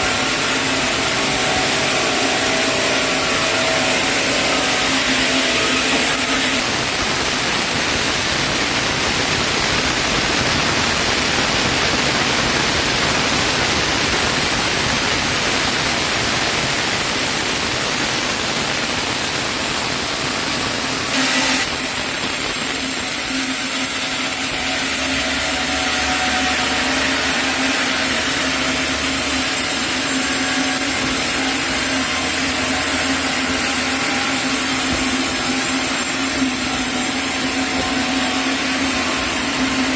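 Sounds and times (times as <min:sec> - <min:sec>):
sawmill saw cutting log: 0:00.0 - 0:07.0, 0:21.1 - 0:39.9.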